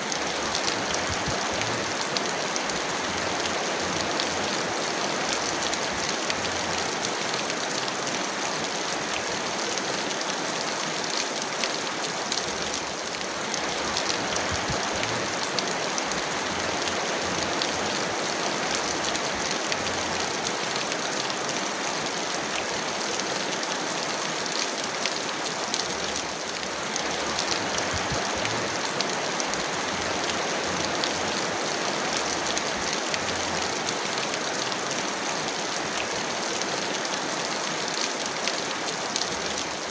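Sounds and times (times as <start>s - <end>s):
heavy rain hissing: 0.0s - 39.9s.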